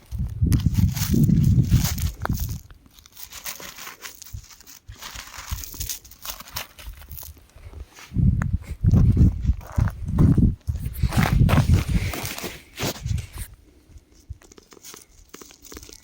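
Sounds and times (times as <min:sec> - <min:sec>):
crackles of crumbling rock: 0:00.0 - 0:07.6, 0:14.0 - 0:16.0.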